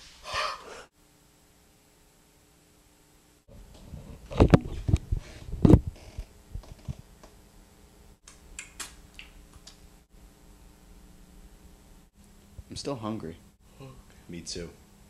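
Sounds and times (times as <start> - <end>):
fingers being licked: 8.3 - 9.8.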